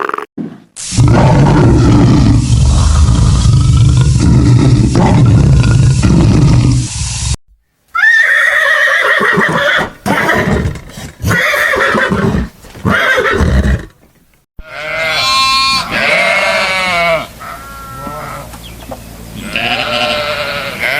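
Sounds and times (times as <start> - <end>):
farm animals calling: 14.6 - 20.9.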